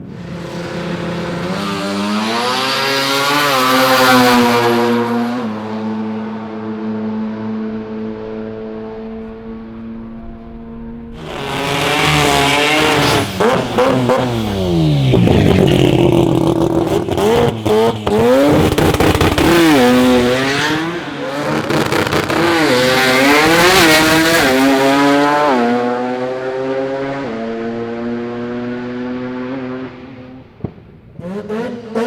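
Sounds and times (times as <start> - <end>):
rotary engine revving: 11.1 - 30.0.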